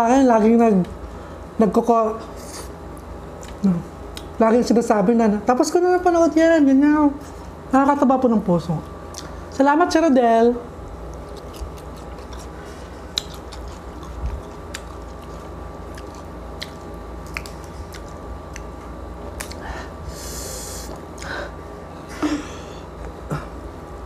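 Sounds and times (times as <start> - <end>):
crunching crispy pork skin: 11.0 - 19.6.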